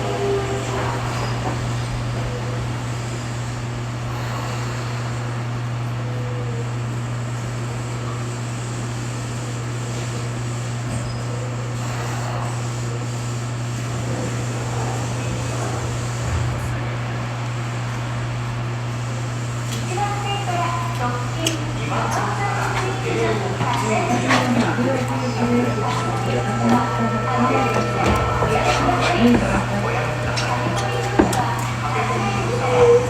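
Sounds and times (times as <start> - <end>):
train car hum and rumble: 0.0 - 33.0
falling motor whine: 24.7 - 33.0.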